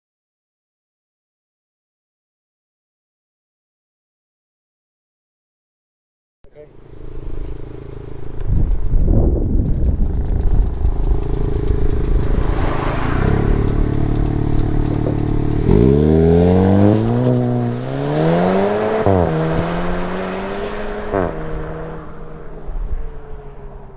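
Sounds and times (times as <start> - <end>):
car engine accelerating: 6.7 - 23.9.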